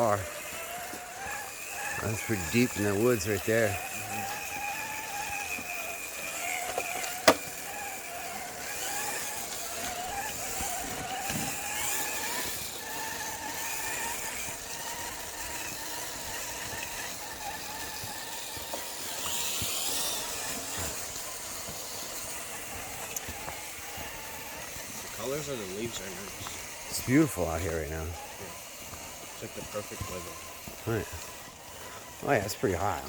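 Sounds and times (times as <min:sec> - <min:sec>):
toy truck electric motor whining: 0:00.0 - 0:33.0.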